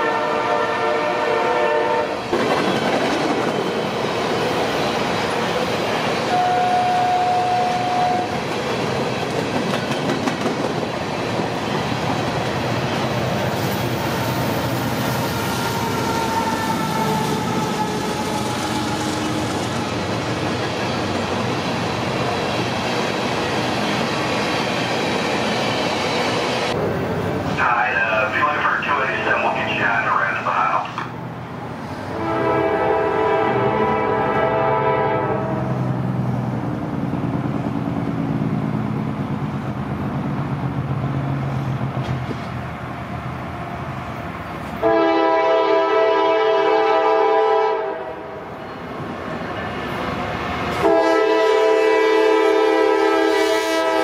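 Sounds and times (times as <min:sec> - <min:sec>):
train horn: 0:00.0 - 0:02.2, 0:06.3 - 0:08.4, 0:15.4 - 0:19.5, 0:32.1 - 0:35.8, 0:44.8 - 0:48.5, 0:50.7 - 0:54.0
freight train rolling past: 0:00.0 - 0:54.0
wheels clacking over rail joints: 0:08.4 - 0:13.2.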